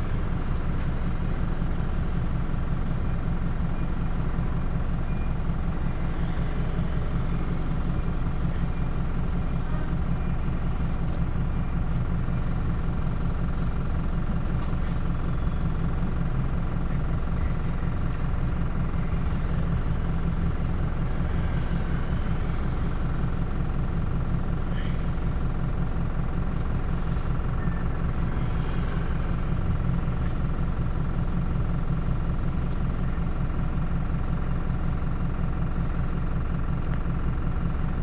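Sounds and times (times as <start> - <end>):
bus engine humming: 0.0 - 38.0.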